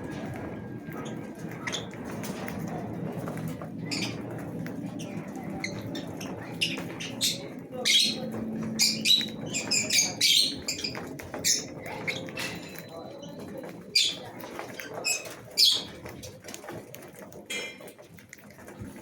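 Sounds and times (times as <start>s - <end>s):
lovebirds chirping and squawking: 3.8s - 16.1s.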